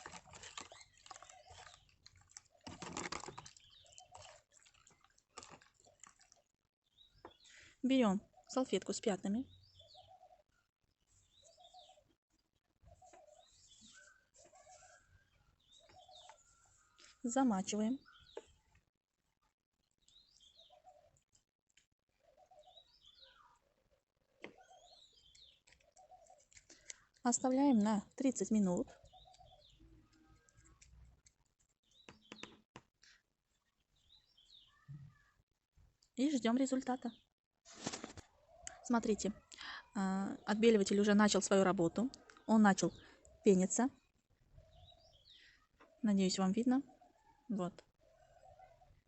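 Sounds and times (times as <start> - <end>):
faint bird chirps: 6.9 - 18.8, 22.1 - 31.2, 31.8 - 35.4, 36.2 - 49.0.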